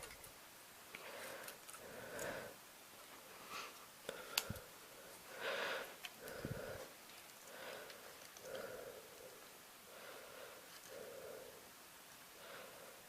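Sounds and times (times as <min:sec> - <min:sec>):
person breathing heavily: 0:01.0 - 0:02.6, 0:03.2 - 0:13.0.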